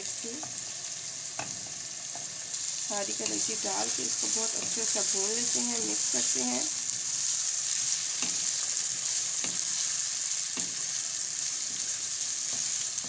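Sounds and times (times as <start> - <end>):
meat sizzling in hot oil: 0.0 - 13.0
wooden spatula striking pan: 9.4 - 9.8, 10.5 - 10.9.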